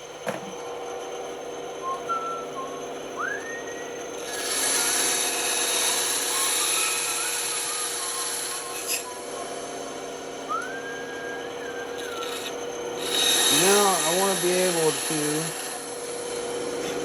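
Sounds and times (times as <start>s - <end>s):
band saw motor hum: 0.0s - 17.0s
band saw cutting wood: 4.2s - 9.9s, 11.5s - 17.0s.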